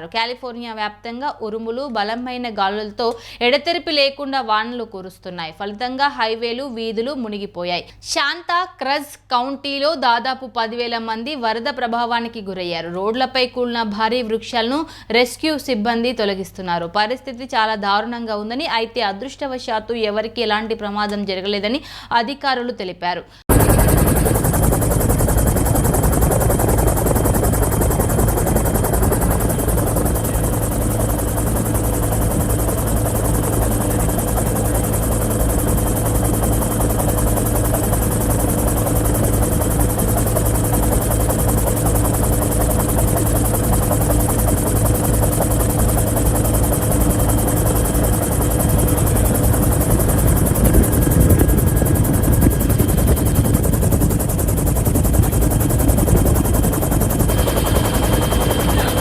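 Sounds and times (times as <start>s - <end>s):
helicopter engine hum: 23.5s - 59.0s
helicopter rotor blade slaps: 23.5s - 59.0s.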